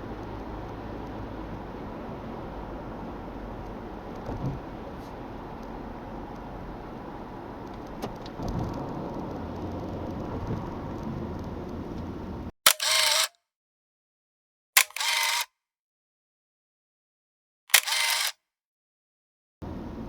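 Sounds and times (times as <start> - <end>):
car engine and road noise: 0.0 - 12.5, 19.6 - 20.0.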